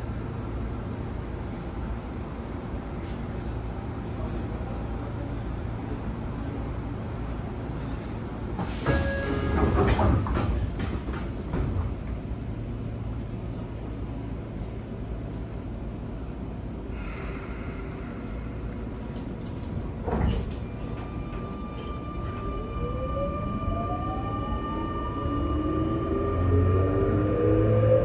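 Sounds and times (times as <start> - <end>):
knocks and clatter: 9.5 - 11.9.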